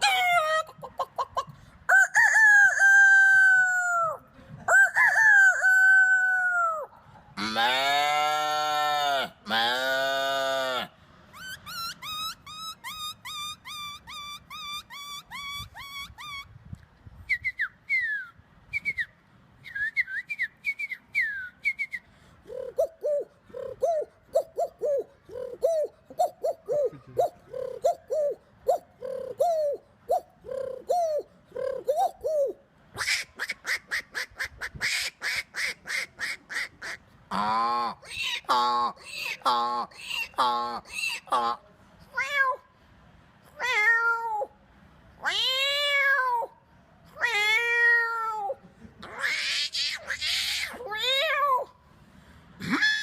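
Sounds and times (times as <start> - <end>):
man imitating bird calls: 10.5 - 16.5, 22.4 - 34.8, 36.8 - 41.7, 52.6 - 53.0.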